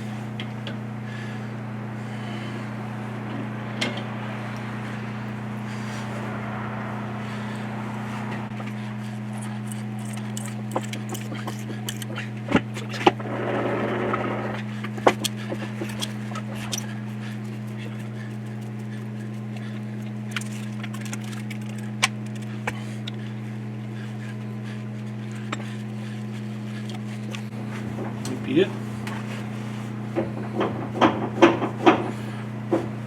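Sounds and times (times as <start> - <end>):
steady low hum: 0.0 - 33.0
scraping rasp: 8.5 - 23.3
hand tools clicking on metal: 8.6 - 13.2, 14.8 - 23.2.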